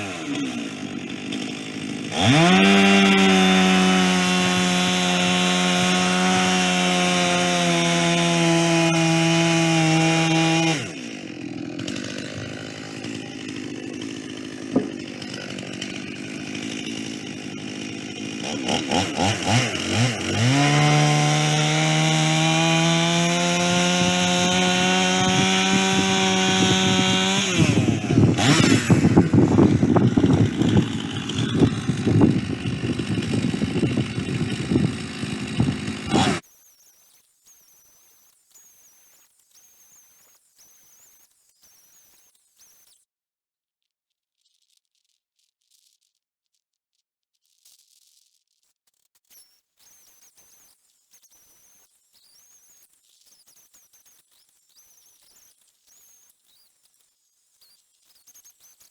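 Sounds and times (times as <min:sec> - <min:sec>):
chainsaw cutting wood: 0:00.0 - 0:43.0.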